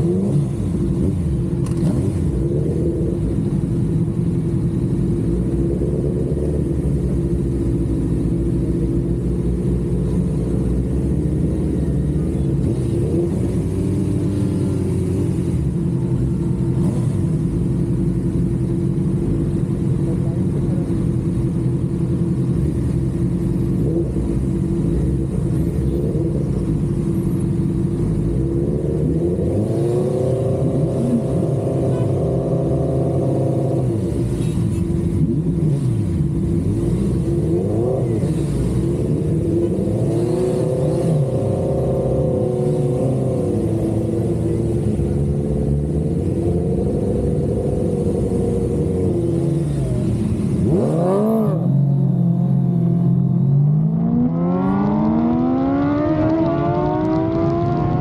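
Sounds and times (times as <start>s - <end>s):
vehicle engines revving: 0.0s - 58.0s
low engine idle rumble: 14.6s - 28.3s.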